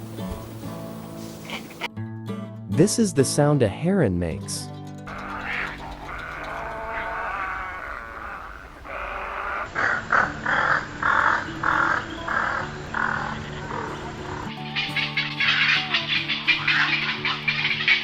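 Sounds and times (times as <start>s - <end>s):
heron croaking calls: 1.0s - 1.9s, 5.1s - 18.0s.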